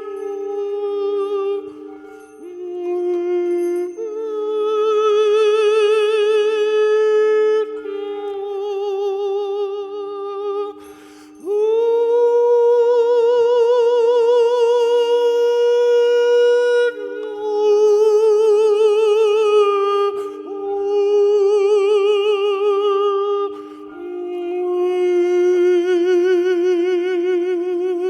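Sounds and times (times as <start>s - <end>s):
person singing long vowel tones: 0.0s - 28.0s
singer breathing: 10.8s - 11.4s, 23.5s - 23.9s.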